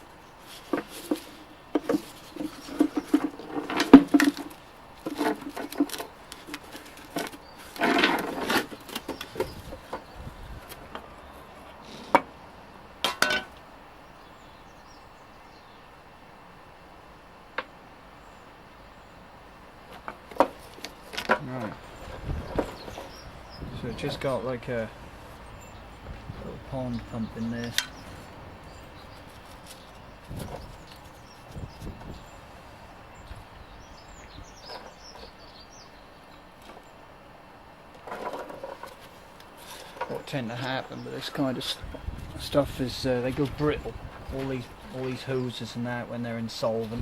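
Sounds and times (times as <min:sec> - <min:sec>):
songbird chirping: 0:00.0 - 0:47.0.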